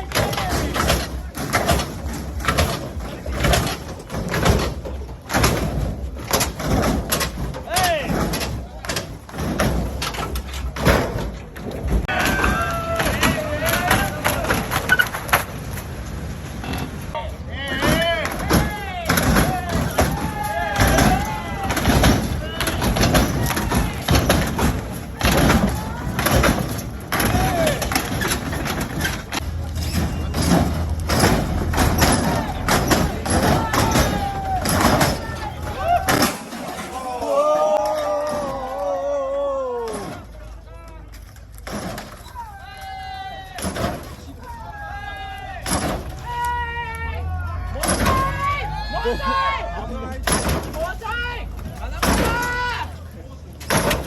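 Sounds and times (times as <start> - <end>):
knocks: 0.0 - 15.5, 17.7 - 36.9, 45.6 - 46.3, 50.2 - 53.0
sharp bangs and clatters: 0.0 - 38.8, 39.8 - 46.7, 47.4 - 48.9, 50.1 - 54.0
crowd chattering: 0.0 - 54.0.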